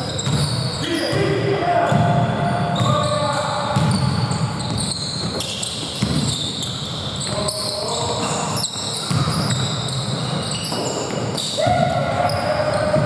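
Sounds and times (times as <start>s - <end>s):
basketball bouncing: 0.0s - 0.6s, 3.8s - 6.5s, 9.0s - 13.0s
sneakers squeaking on hardwood: 0.0s - 1.3s, 1.9s - 13.0s.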